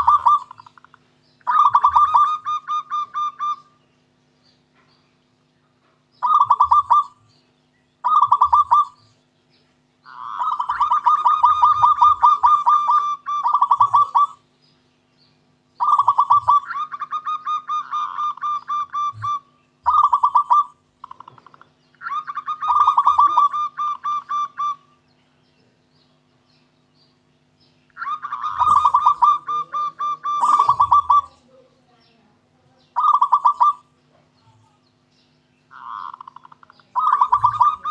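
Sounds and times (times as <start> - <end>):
dove cooing: 0.0 - 3.8, 6.2 - 7.3, 8.0 - 9.2, 10.0 - 14.5, 15.8 - 25.0, 27.9 - 31.9, 32.9 - 34.8, 35.7 - 37.9.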